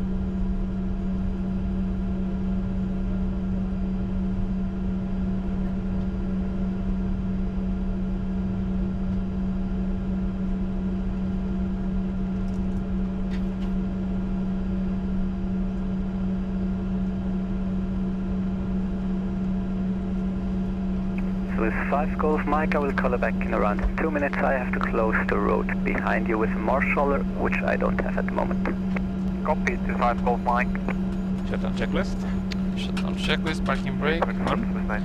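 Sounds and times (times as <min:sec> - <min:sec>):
aircraft engines idling hum: 0:21.2 - 0:35.0.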